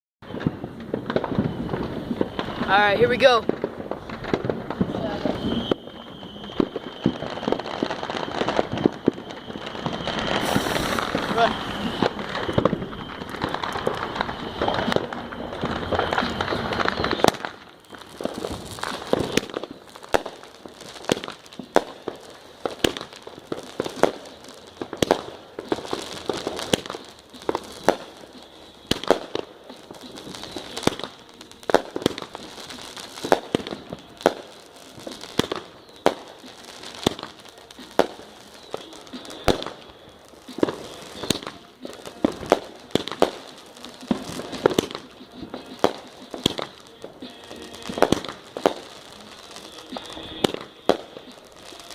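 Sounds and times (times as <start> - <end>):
firework bangs: 0.2 - 51.9
firework crackle: 0.2 - 51.9.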